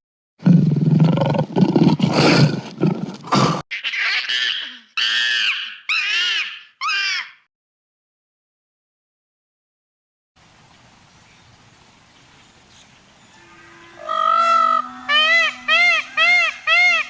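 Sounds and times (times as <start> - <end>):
high-pitched animal calls: 3.7 - 7.4, 13.3 - 17.0
big cat roaring and growling: 13.4 - 16.2.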